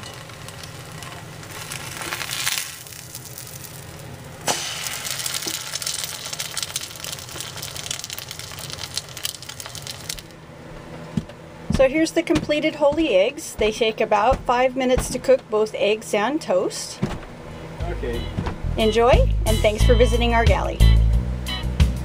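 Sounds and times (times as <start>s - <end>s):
spatula flipping toast: 0.0s - 10.2s
toast sizzling in a skillet: 0.0s - 10.3s.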